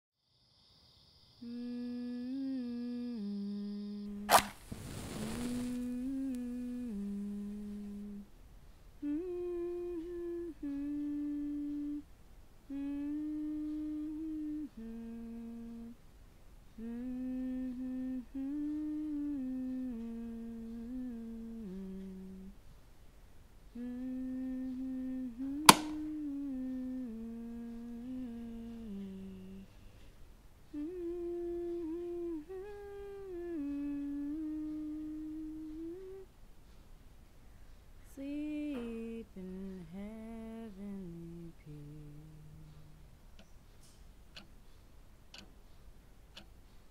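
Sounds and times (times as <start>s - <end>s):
woman humming a slow tune: 1.4s - 4.4s, 5.0s - 8.4s, 9.0s - 16.1s, 16.7s - 22.7s, 23.6s - 30.0s, 30.6s - 36.4s, 38.0s - 44.5s
sharp click: 4.3s - 4.6s, 25.6s - 26.2s.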